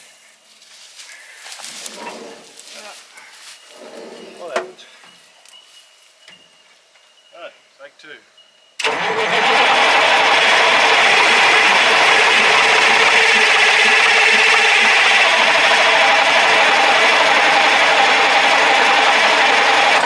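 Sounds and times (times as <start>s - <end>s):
diesel engine rasp: 1.6s - 2.8s, 8.8s - 20.0s.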